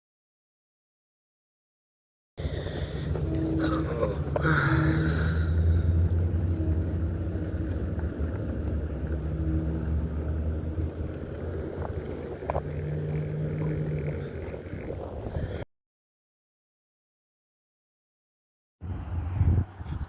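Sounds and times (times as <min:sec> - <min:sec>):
motor humming: 0:02.4 - 0:15.6.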